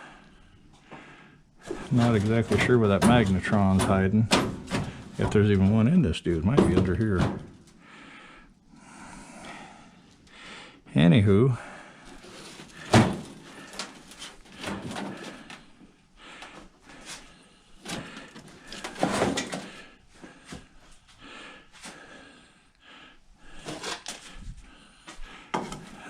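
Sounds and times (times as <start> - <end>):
sheet metal knocks and clicks: 1.7 - 5.6.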